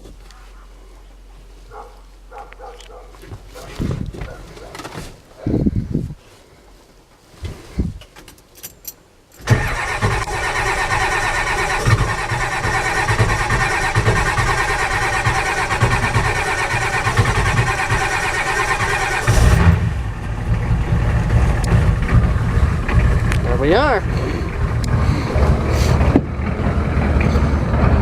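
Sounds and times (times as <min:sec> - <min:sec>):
diesel engine running: 0:09.4 - 0:28.0
diesel engine starter cranking: 0:09.4 - 0:28.0.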